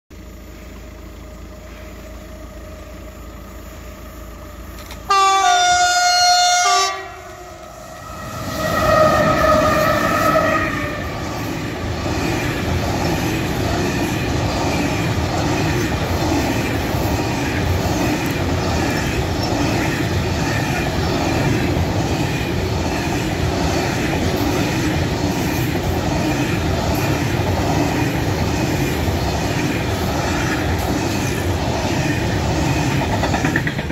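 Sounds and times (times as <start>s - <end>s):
electric locomotives passing: 0.2s - 33.9s
freight train rumbling past: 0.2s - 33.9s
train horn: 5.0s - 11.2s.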